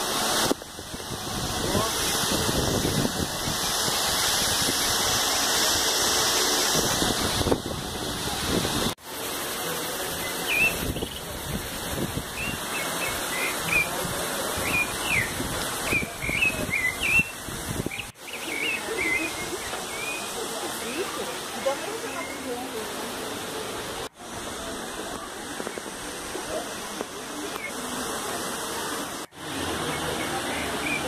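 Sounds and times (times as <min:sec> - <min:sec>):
steady rushing noise: 0:00.0 - 0:31.0
small birds chirping: 0:12.4 - 0:14.0, 0:14.6 - 0:20.4.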